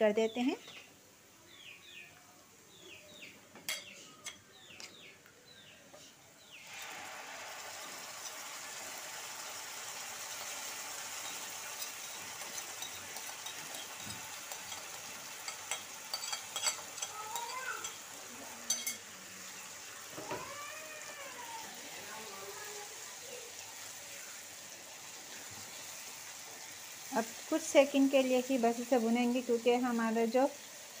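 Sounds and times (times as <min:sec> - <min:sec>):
paste sizzling in hot oil: 0:06.6 - 0:31.0
spoon scraping bowl and pan: 0:10.2 - 0:19.1.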